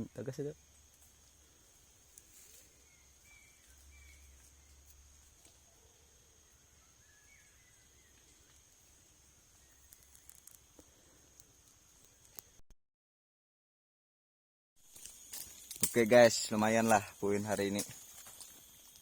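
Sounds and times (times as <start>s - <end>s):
high insect drone: 0.0s - 12.6s, 14.8s - 19.0s
small clicks: 9.8s - 12.6s.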